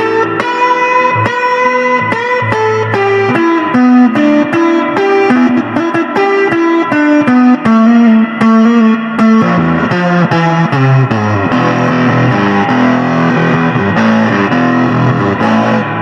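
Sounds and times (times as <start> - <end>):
backing music: 0.0 - 16.0
electric guitar lead: 0.0 - 16.0
bass line: 7.8 - 16.0.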